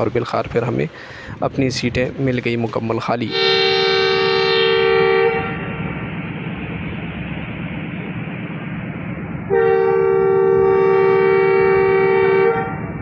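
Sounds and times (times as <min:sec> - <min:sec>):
train engine rumbling: 0:00.0 - 0:13.0
train horn chord: 0:03.3 - 0:05.9, 0:09.5 - 0:13.0.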